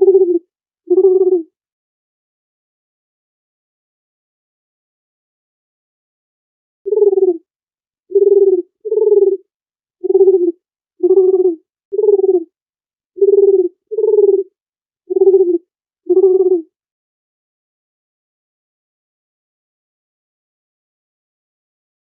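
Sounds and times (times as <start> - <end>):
dove cooing: 0.0 - 1.5, 6.9 - 7.4, 8.1 - 9.4, 10.0 - 12.5, 13.2 - 14.5, 15.1 - 16.7.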